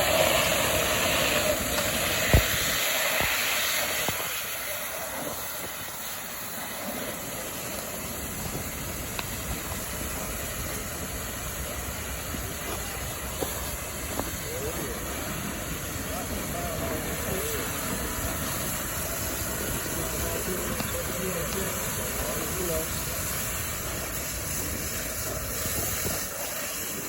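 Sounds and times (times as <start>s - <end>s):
fire hose stream hissing: 0.0s - 27.0s.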